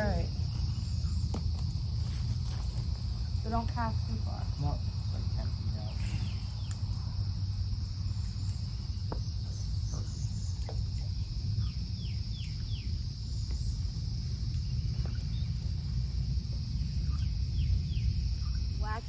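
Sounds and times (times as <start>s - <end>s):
birds chirping: 0.0s - 16.1s, 16.7s - 19.0s
insects droning: 0.0s - 19.0s
low rumble: 0.0s - 19.0s.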